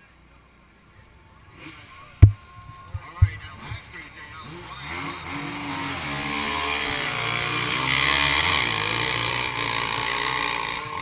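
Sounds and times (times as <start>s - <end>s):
motorcycle engine running: 2.2s - 11.0s.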